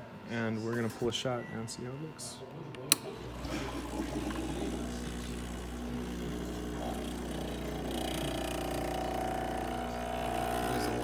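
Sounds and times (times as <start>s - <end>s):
espresso machine pump humming: 3.1s - 11.0s.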